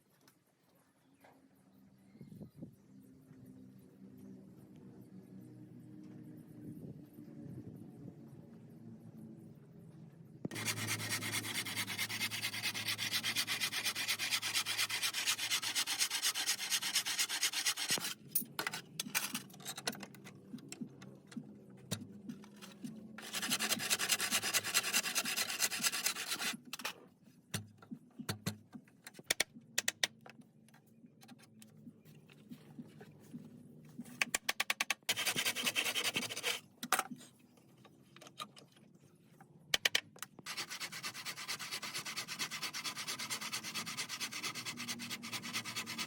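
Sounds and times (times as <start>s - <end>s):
wood being sanded: 10.5s - 18.2s, 23.2s - 26.6s, 35.1s - 36.6s, 40.5s - 46.0s.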